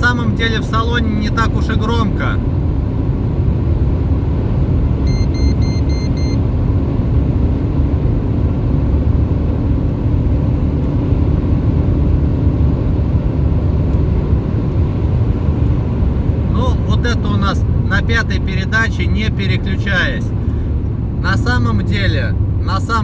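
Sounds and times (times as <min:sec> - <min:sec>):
car engine droning under throttle: 0:00.0 - 0:23.0
road and wind noise: 0:00.0 - 0:23.0
quick electronic beeps: 0:05.0 - 0:06.4.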